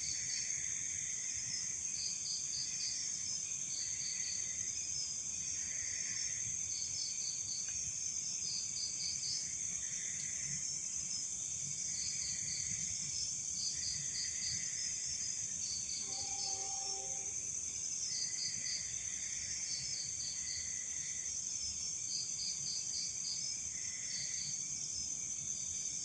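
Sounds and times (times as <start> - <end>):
crickets chirping: 0.0 - 26.0
low insect chorus: 0.0 - 26.0
high-pitched insect trill: 5.4 - 10.8, 13.6 - 21.2.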